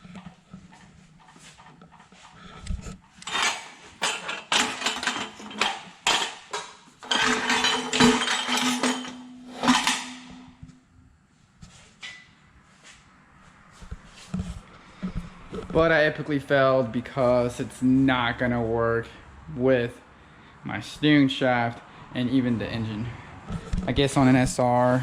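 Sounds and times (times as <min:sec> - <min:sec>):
metal clanking and knocking: 0:03.0 - 0:10.7.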